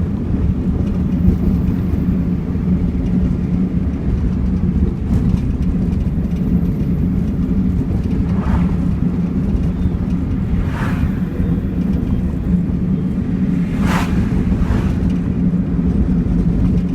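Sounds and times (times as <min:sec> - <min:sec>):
car engine droning: 0:00.0 - 0:16.9.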